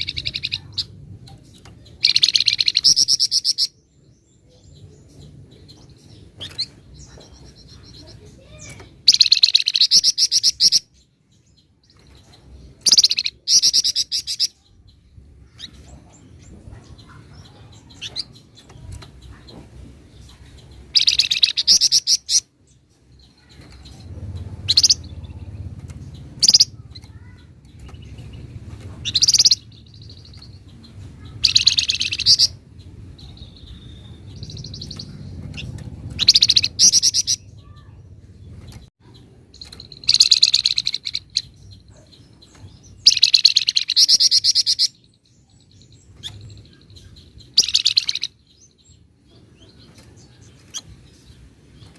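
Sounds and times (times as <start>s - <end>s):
songbird rattling trills: 5.2s - 10.8s, 20.2s - 22.4s, 23.1s - 32.6s, 33.2s - 37.9s, 38.6s - 48.7s.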